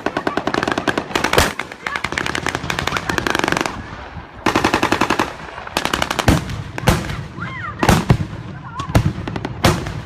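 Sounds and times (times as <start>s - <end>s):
automatic gunfire bursts: 4.4s - 7.1s.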